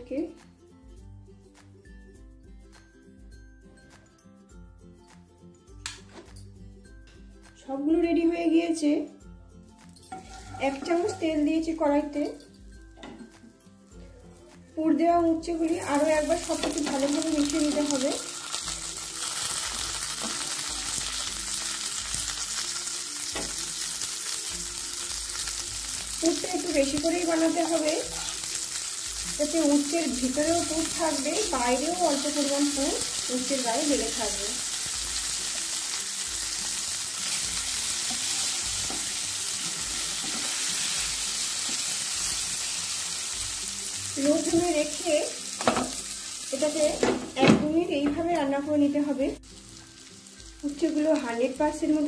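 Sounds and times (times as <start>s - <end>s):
spatula scraping in pan: 10.1s - 11.3s
vegetables sizzling in a pan: 10.1s - 11.8s, 12.6s - 52.0s.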